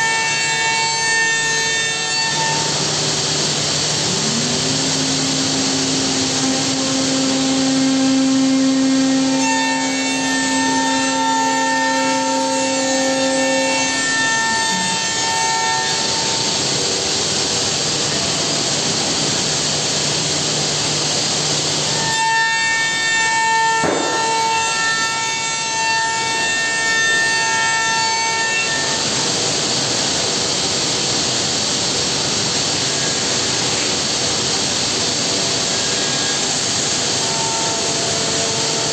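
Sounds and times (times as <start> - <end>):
cnc machine cutting wood: 0.0 - 38.9
spindle whine: 1.3 - 22.0.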